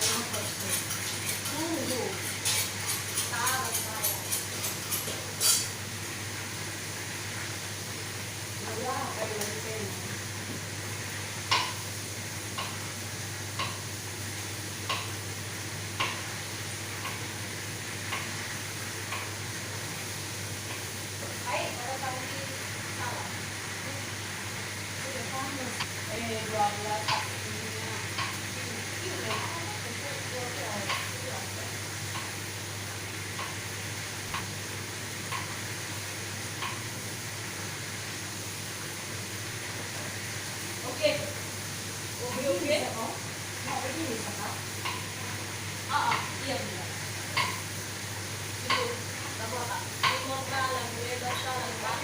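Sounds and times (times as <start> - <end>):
food sizzling in a pan: 0.0 - 52.0.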